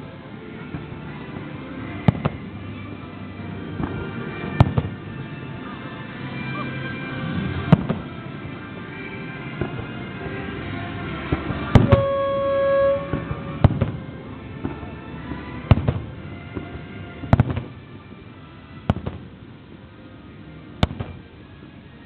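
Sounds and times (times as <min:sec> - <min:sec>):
music with long held note: 0:00.0 - 0:22.0
fireworks exploding: 0:01.9 - 0:02.5, 0:03.8 - 0:05.1, 0:07.6 - 0:08.2, 0:09.5 - 0:10.6, 0:11.2 - 0:14.9, 0:15.7 - 0:17.9, 0:18.9 - 0:19.4, 0:20.8 - 0:21.5.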